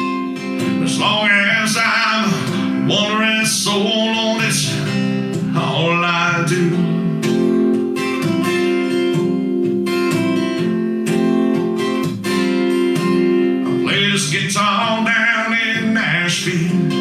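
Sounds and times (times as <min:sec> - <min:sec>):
person singing: 0:00.0 - 0:07.5, 0:13.7 - 0:17.0
acoustic guitar strumming: 0:00.0 - 0:17.0.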